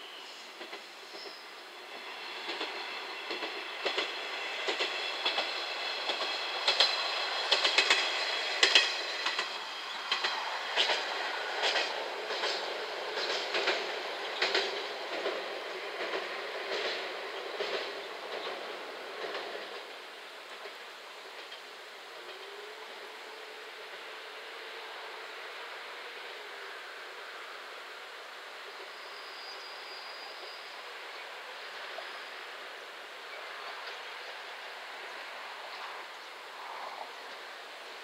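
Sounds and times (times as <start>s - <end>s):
wheels clicking over rail joints: 2.5s - 22.6s.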